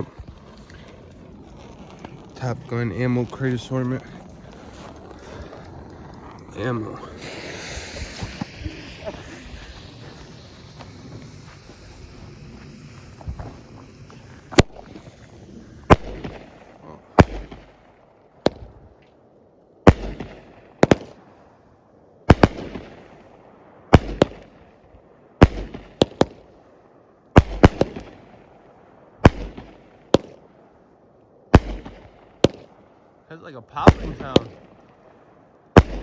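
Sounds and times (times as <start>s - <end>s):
fireworks bangs and crackle: 0.0s - 18.9s, 19.9s - 21.2s, 22.3s - 23.3s, 23.9s - 24.6s, 25.4s - 26.5s, 27.4s - 28.5s, 29.2s - 30.4s, 31.5s - 32.8s, 33.7s - 34.9s, 35.7s - 36.0s.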